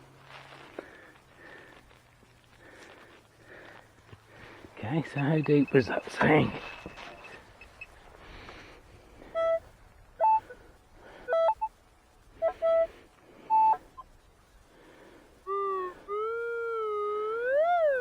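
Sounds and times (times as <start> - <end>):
metal detector beeps: 5.1 - 8.0, 10.2 - 10.5, 11.3 - 11.7, 13.5 - 13.8
metal detector sliding tone: 5.4 - 7.8.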